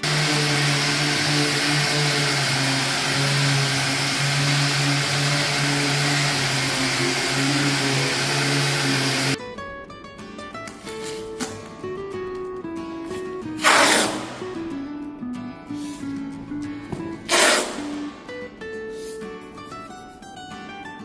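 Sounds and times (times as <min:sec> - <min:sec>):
electric power tool motor: 0:00.0 - 0:09.4, 0:13.6 - 0:14.4, 0:17.3 - 0:18.0.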